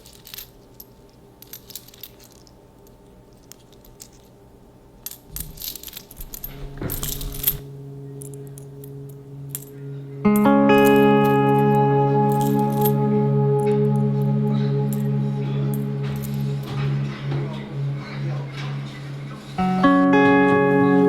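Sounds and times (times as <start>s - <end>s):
low steady hum: 0.0s - 21.0s
light metallic clinks: 5.0s - 17.2s.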